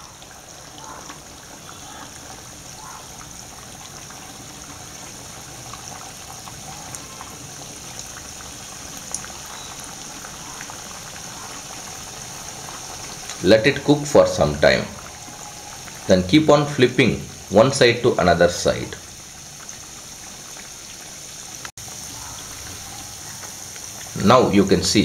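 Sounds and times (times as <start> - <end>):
dough deep-frying in oil: 0.0 - 25.0.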